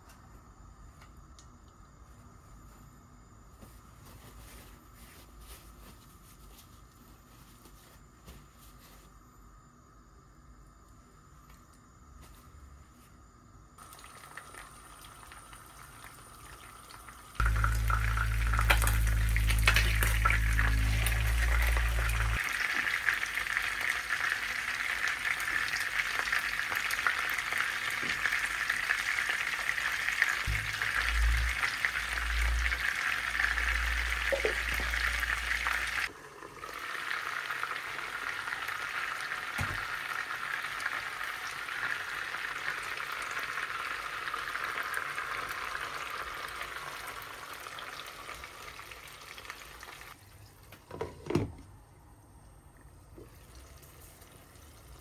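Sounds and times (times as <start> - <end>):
food sizzling in a pan: 13.8 - 50.2
low hum: 17.4 - 22.4, 30.5 - 36.1.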